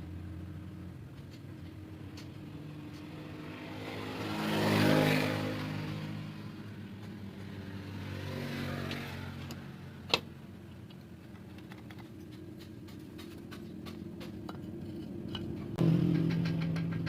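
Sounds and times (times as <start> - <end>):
small engine running: 15.8 - 17.0.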